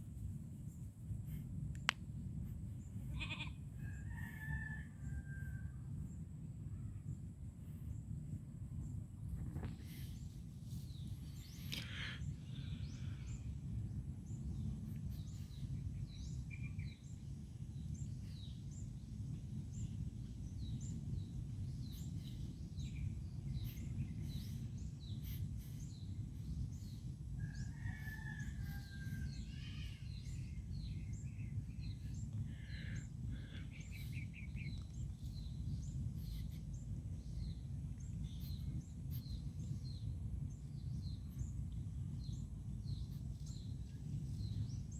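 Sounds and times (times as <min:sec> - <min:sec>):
steady low rumble: 0:00.0 - 0:44.9
birds chirping: 0:19.7 - 0:44.9.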